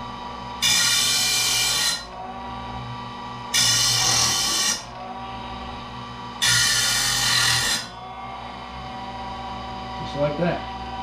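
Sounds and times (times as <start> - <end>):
saw sharpener motor hum: 0.0 - 11.0
loud high grinding: 0.6 - 2.5, 3.4 - 5.5, 6.1 - 8.5.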